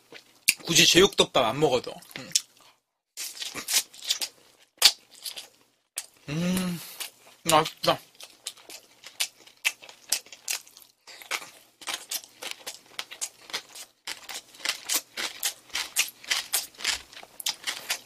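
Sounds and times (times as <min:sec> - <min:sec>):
wet crunchy chewing: 0:02.0 - 0:06.2, 0:07.0 - 0:18.0.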